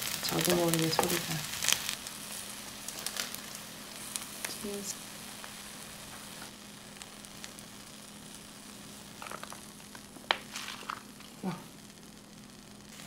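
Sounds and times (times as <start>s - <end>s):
toast sizzling in frying pan: 0.0s - 13.0s
ketchup packet crinkling: 9.2s - 11.4s.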